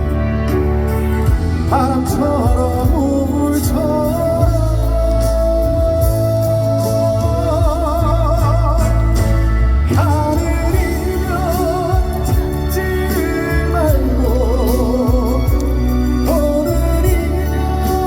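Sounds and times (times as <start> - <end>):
band accompaniment with bass: 0.0 - 18.0
man singing with vibrato: 1.3 - 18.0.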